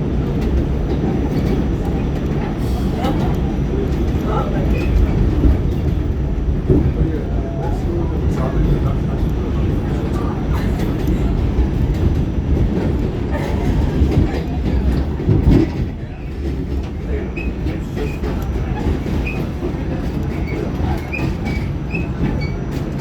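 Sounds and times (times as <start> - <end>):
subway car rumbling on track: 0.0 - 23.0
wheels clicking over rail joints: 0.1 - 23.0
high wheel squeaks: 7.7 - 23.0.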